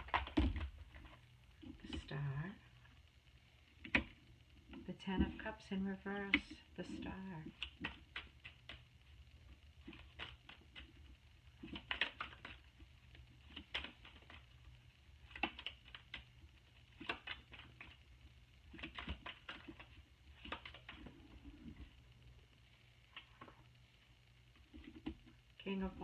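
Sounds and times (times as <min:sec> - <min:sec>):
low room hum: 0:00.0 - 0:26.0
cards being shuffled: 0:09.8 - 0:14.6, 0:15.2 - 0:18.0, 0:18.7 - 0:21.9.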